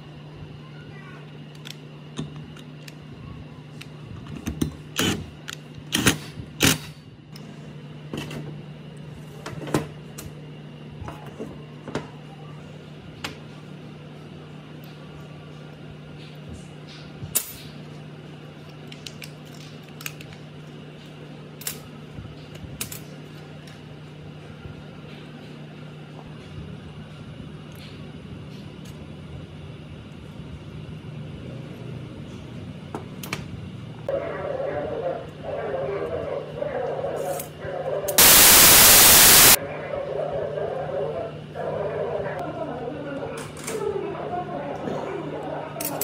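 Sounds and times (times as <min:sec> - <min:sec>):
low hum: 0:38.2 - 0:39.6.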